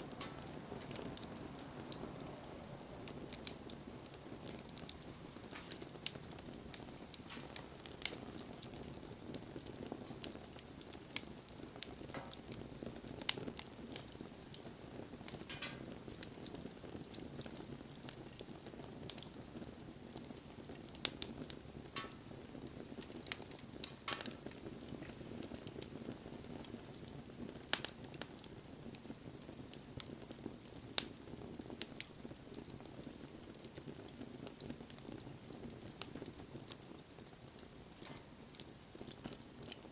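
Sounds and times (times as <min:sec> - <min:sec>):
flames hissing: 0:00.0 - 0:29.0
burning wood crackling and popping: 0:00.0 - 0:39.9.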